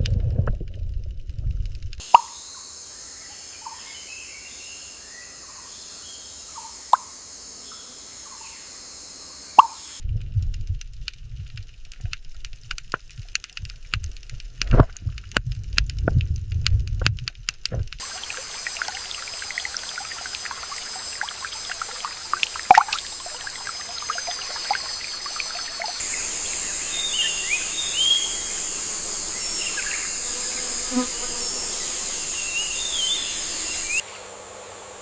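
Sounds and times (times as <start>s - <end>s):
low rumble of water: 0.0s - 2.0s, 10.0s - 27.1s
high insect drone: 2.0s - 10.0s, 18.0s - 35.0s
water splashes and drips: 9.6s - 27.1s
steady hiss with clicks: 10.6s - 19.7s.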